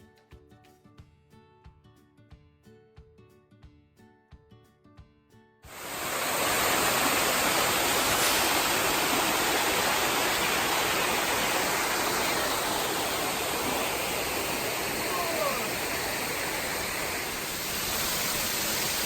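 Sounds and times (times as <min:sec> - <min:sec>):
waterfall rushing: 0:05.7 - 0:19.0.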